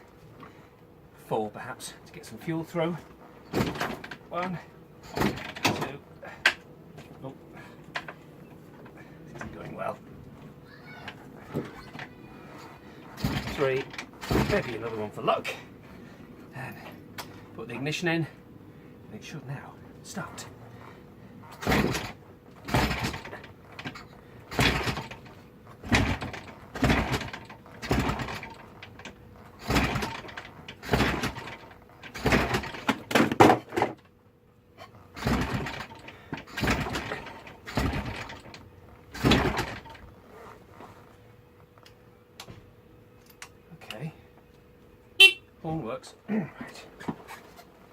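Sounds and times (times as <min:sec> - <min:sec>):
motorcycle kick-start strokes: 0:03.4 - 0:08.2, 0:11.1 - 0:15.5, 0:20.1 - 0:34.1, 0:34.8 - 0:41.2.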